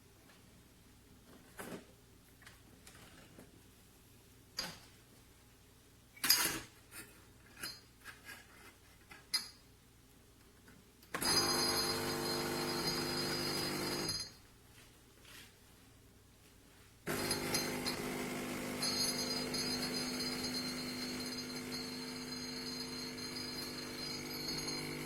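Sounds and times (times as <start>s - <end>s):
espresso machine pump buzzing: 11.2s - 14.1s, 17.1s - 25.0s.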